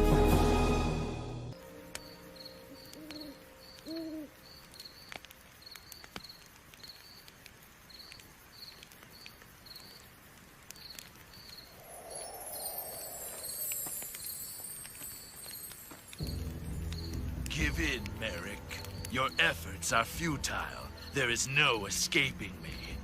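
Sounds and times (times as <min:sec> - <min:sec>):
crickets chirping: 0:01.5 - 0:23.0
owl hooting: 0:02.0 - 0:04.5
soft rushing noise: 0:11.6 - 0:15.1.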